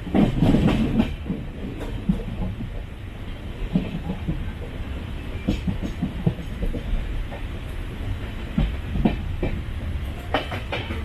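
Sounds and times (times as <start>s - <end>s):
train rumbling on track: 0.0s - 11.0s
wheels clicking on rails: 3.6s - 11.0s.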